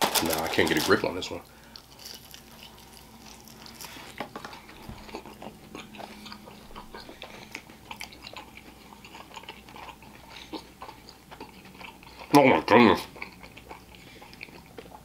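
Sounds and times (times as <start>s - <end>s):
biting and chewing chicken: 0.0s - 15.0s.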